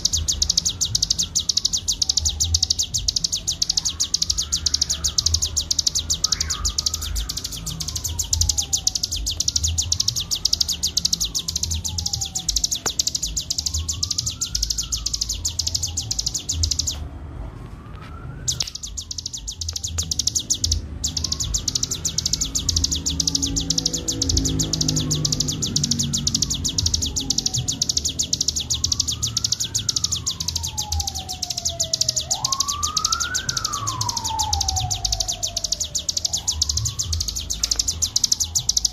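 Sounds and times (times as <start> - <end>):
slow rising and falling whistle: 0.2 - 17.0, 18.3 - 38.9.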